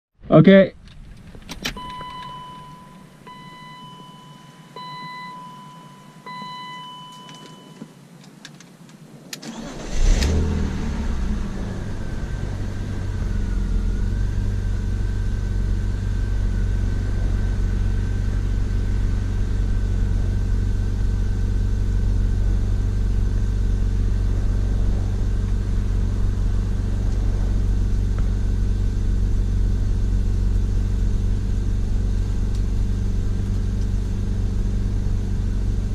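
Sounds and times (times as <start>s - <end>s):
faint whine: 0.2s - 35.9s
car engine starting and idling: 0.3s - 35.9s
short electronic beeps: 1.8s - 8.0s.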